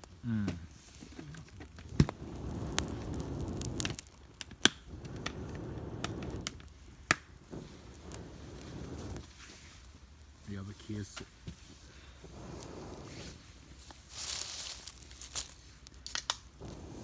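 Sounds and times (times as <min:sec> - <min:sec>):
damp branches snapping and popping: 0:00.0 - 0:10.4, 0:13.7 - 0:17.0
low rushes of air: 0:01.8 - 0:04.1, 0:04.8 - 0:10.0, 0:11.7 - 0:14.5, 0:16.6 - 0:17.0.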